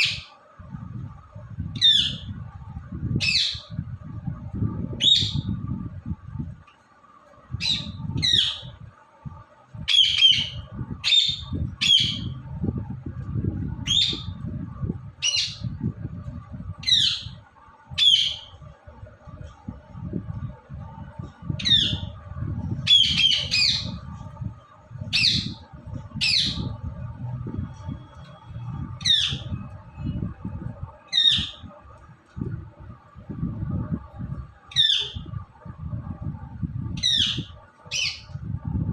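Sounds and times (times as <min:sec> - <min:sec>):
parakeet squawking: 0:00.0 - 0:00.3, 0:01.8 - 0:02.3, 0:05.0 - 0:05.4, 0:07.6 - 0:08.7, 0:09.9 - 0:12.4, 0:13.8 - 0:14.4, 0:15.2 - 0:15.6, 0:16.8 - 0:17.4, 0:18.0 - 0:18.5, 0:21.6 - 0:22.1, 0:22.8 - 0:24.0, 0:25.1 - 0:25.6, 0:26.2 - 0:26.7, 0:29.0 - 0:29.7, 0:31.1 - 0:31.6, 0:34.7 - 0:35.2, 0:37.0 - 0:38.3
low rumble: 0:00.6 - 0:06.6, 0:07.4 - 0:37.5, 0:38.2 - 0:38.9.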